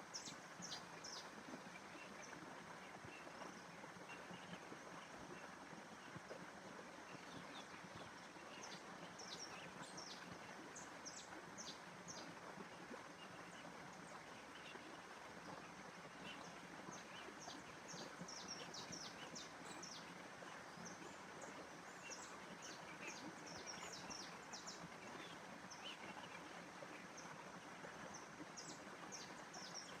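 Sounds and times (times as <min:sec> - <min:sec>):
soft background hiss: 0:00.0 - 0:30.0
small birds chirping: 0:07.1 - 0:12.4, 0:13.2 - 0:27.3, 0:28.0 - 0:30.0.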